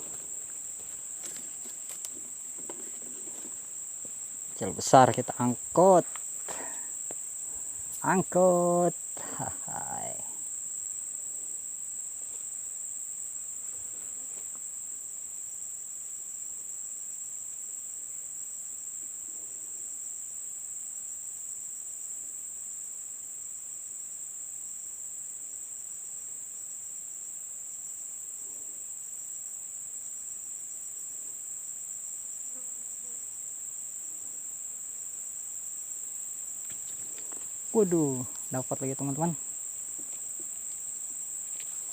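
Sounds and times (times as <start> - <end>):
insects droning: 0.0 - 41.9.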